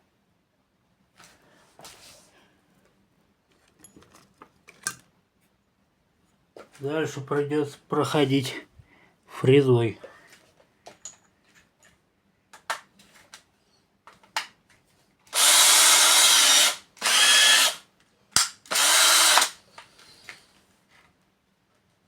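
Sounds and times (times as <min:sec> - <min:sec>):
power tool bursts: 0:15.3 - 0:17.8, 0:18.7 - 0:19.6.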